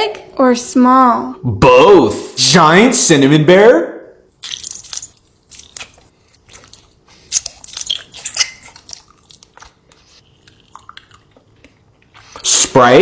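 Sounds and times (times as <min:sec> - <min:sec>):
crunchy chewing of candy: 0:04.4 - 0:12.4.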